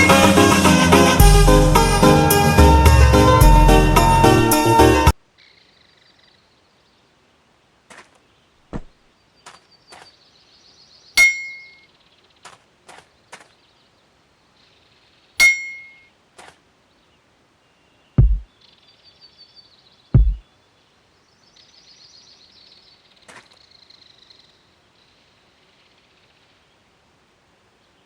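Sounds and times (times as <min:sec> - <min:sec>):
metal clangs ringing: 0:11.2 - 0:11.8, 0:15.4 - 0:16.0
heavy low thump: 0:18.2 - 0:18.4, 0:20.2 - 0:20.4.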